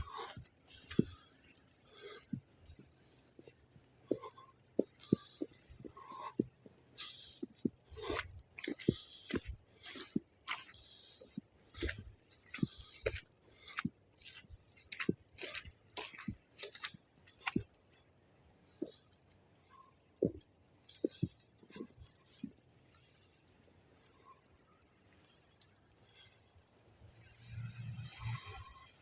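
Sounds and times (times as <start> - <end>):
footsteps in snow: 0.0 - 17.8.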